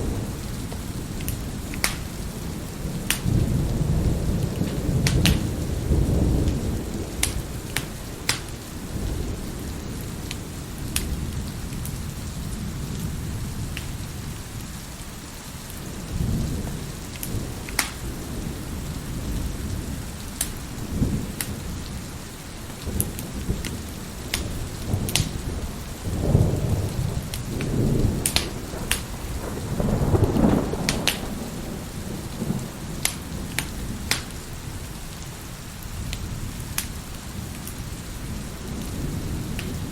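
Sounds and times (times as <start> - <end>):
thunder rumbling: 0.0 - 15.0, 15.7 - 39.9
heavy rain: 0.0 - 39.9
wood fire crackling: 0.0 - 39.9.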